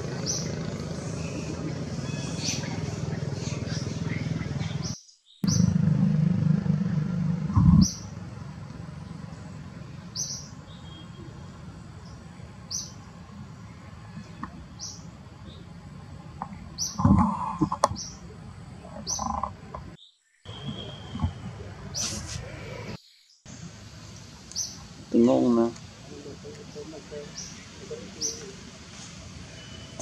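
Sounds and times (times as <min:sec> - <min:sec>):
low rumble: 0:00.0 - 0:09.8
bird chirping: 0:00.1 - 0:05.8, 0:07.6 - 0:08.2, 0:09.0 - 0:15.8, 0:16.5 - 0:22.2, 0:24.1 - 0:25.3, 0:26.4 - 0:28.6
steady background hiss: 0:20.5 - 0:30.0.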